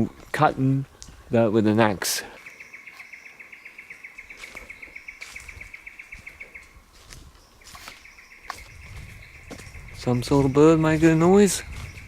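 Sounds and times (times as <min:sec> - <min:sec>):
bird trilling: 0:02.4 - 0:06.7.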